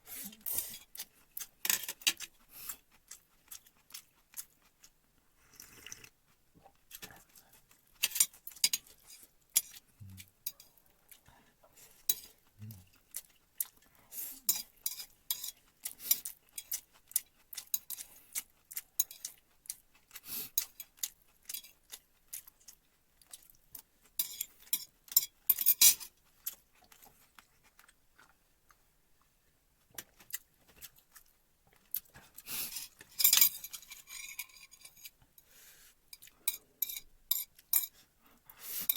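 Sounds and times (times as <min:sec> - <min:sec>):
utensils clinking against a dish: 0:08.0 - 0:09.8, 0:14.5 - 0:16.8, 0:24.2 - 0:26.1, 0:32.6 - 0:35.2, 0:36.1 - 0:38.0.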